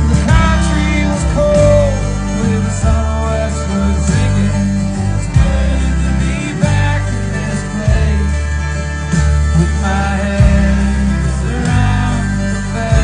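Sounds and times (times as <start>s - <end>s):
drum hits: 0.0s - 2.0s
country band playing live: 0.0s - 13.0s
heavy bass line: 0.0s - 13.0s.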